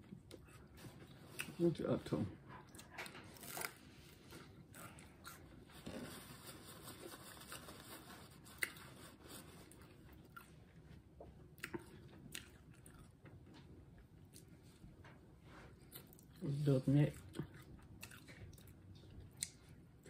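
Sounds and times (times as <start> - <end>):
crunchy chewing: 17.2 - 19.8.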